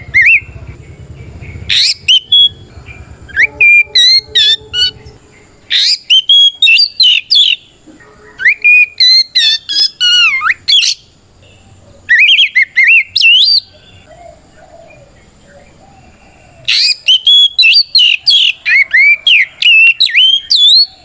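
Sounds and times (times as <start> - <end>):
low rumble: 0.4 - 5.8
bird singing whistles and chirps: 1.5 - 11.0, 16.7 - 21.0.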